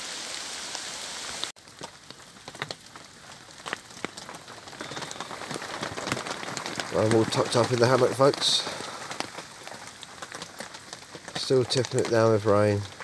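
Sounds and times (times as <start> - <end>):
heavy rain hissing: 0.0 - 1.5, 4.7 - 13.0
raindrops ticking on fabric: 1.4 - 13.0.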